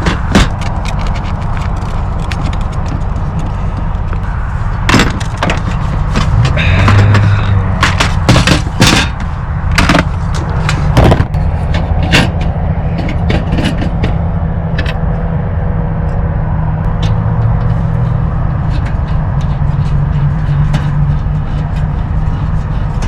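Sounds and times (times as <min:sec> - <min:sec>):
low rumble: 0:00.9 - 0:23.0
sharp knocks and clanks: 0:04.9 - 0:15.0.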